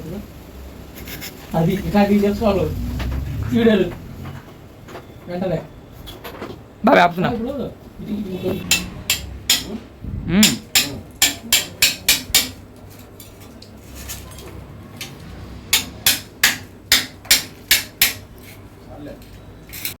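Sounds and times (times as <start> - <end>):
hammer strikes: 8.6 - 12.6, 15.7 - 18.3.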